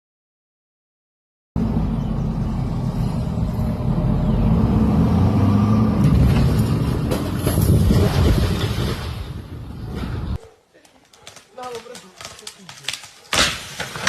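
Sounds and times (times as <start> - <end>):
large engine rumbling: 1.6 - 8.3.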